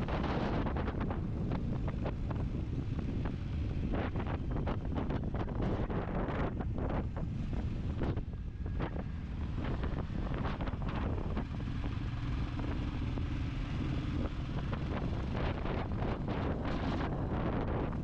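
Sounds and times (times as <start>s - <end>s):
motorcycle engine running: 0.0s - 18.0s
wind buffeting microphone: 0.0s - 18.0s.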